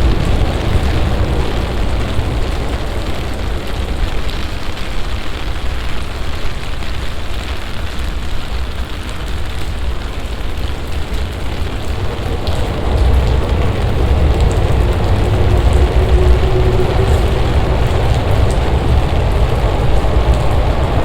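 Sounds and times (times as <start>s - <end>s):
heavy rain hissing: 0.0s - 21.0s
deep rumble: 10.5s - 21.0s.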